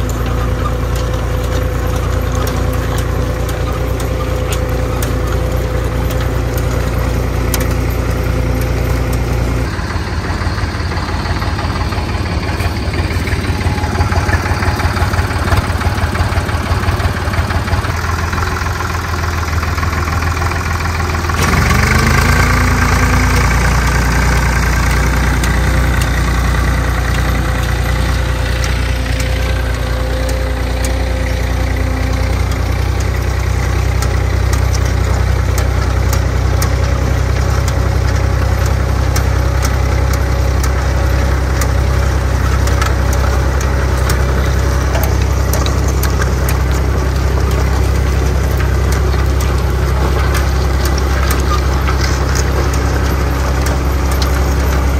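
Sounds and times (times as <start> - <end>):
tractor diesel engine running: 0.0 - 54.9
light regular ticking: 20.1 - 54.9.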